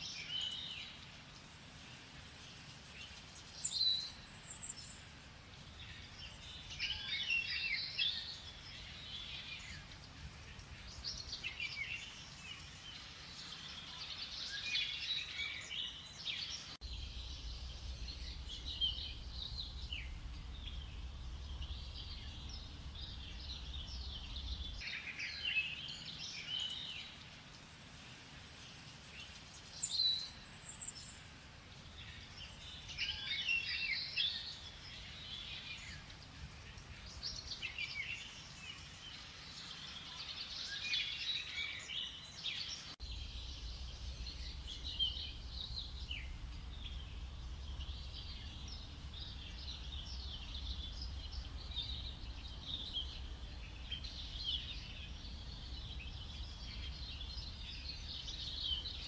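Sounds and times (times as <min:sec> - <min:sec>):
low rumble: 0:16.8 - 0:24.8, 0:43.0 - 0:59.0.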